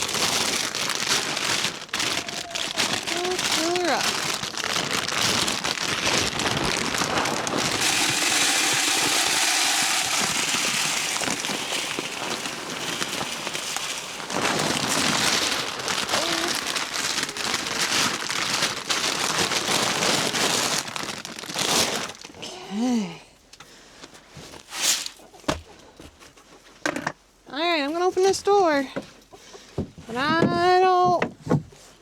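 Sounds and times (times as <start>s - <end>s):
grain pouring into feeder: 5.5s - 22.2s.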